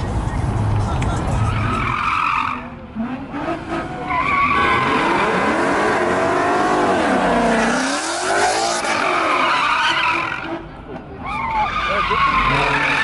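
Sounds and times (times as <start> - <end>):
tires screeching: 0.0 - 13.0
car engine revving: 2.5 - 9.4.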